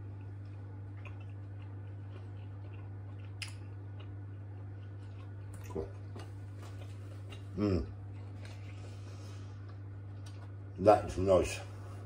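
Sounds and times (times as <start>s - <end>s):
man chewing: 0.0s - 10.6s
steady low hum: 0.0s - 12.0s
man humming mm: 7.5s - 8.0s.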